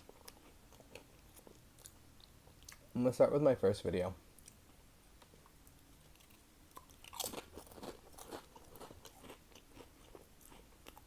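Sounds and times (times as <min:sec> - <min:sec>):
snack chips crunching: 0:06.1 - 0:11.0.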